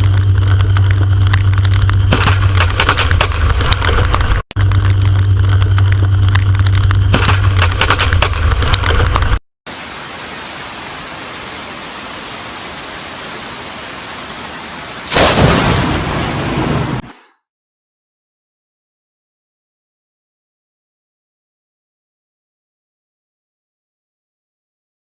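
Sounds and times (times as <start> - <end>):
thunder rumble with crackling: 0.0 - 9.4, 10.7 - 17.1
steady rain hiss: 8.8 - 17.0
loud thunderclap: 15.0 - 17.0.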